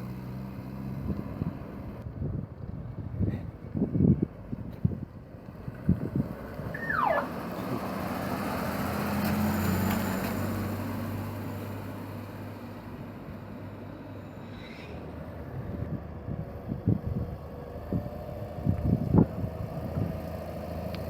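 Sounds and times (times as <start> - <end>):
wind buffeting microphone: 1.0 - 8.1, 15.3 - 20.5
car driving past: 6.4 - 12.9
short falling whistle: 6.8 - 7.3.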